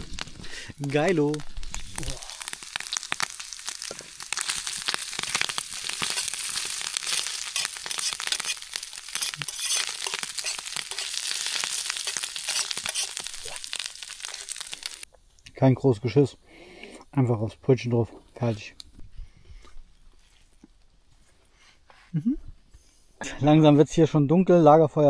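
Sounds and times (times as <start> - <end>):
bacon sizzling in a pan: 0.0 - 15.1.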